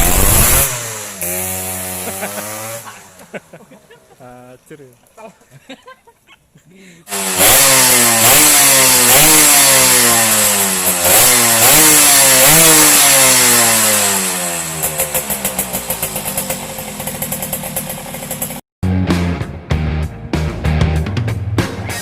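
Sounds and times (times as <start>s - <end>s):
motorcycle engine revving: 0.0s - 3.6s, 7.1s - 18.6s.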